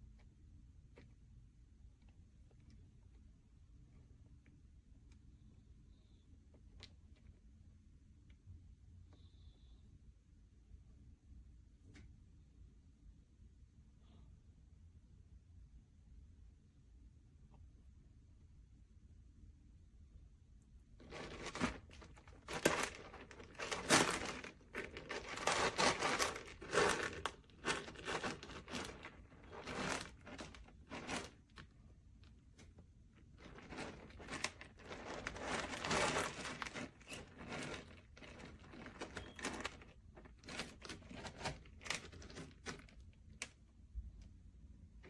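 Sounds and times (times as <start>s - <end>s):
packaging crinkling and rustling: 21.0s - 31.7s, 33.4s - 43.6s.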